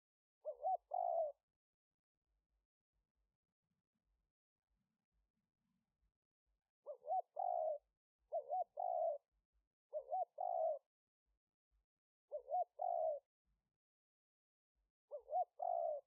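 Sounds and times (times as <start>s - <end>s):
dove cooing: 0.4s - 1.4s, 6.8s - 9.3s, 9.9s - 10.9s, 12.3s - 13.2s, 15.1s - 16.0s.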